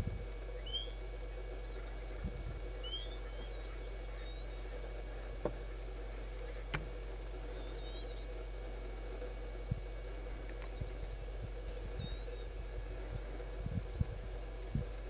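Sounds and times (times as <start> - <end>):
steady low hum: 0.0 - 15.0
high bird chirps: 0.6 - 1.0, 2.8 - 4.6.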